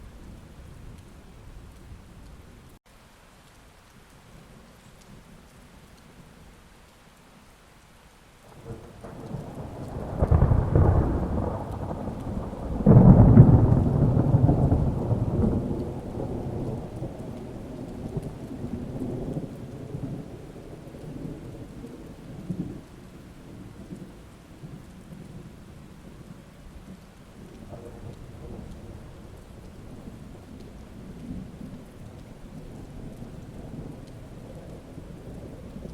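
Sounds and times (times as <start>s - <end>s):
rain falling: 0.0s - 35.9s
thunder rumbling and clapping: 8.4s - 35.9s.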